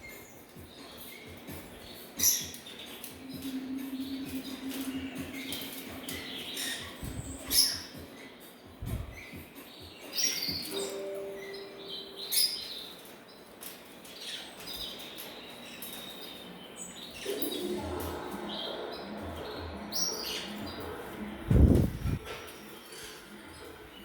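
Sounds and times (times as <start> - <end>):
loud sharp bird calls: 0.0 - 21.4
pet birds chirping and calling: 0.0 - 24.0
low thumps: 21.4 - 22.3.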